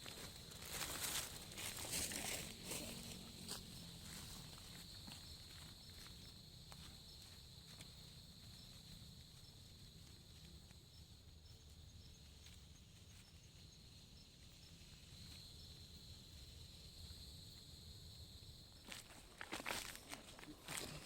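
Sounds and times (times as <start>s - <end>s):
footsteps: 0.0s - 10.8s, 18.8s - 21.0s
insects trilling: 0.0s - 21.0s.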